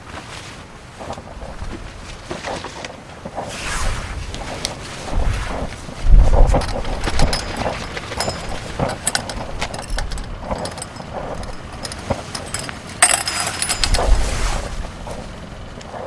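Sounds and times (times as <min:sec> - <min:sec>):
rustling clatter: 0:06.2 - 0:15.2
small hard objects clinking: 0:06.6 - 0:14.3.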